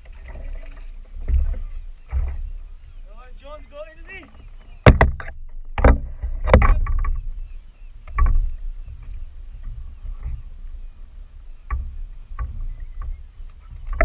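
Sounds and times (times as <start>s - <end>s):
sharp knocks on kayak: 4.8s - 7.2s.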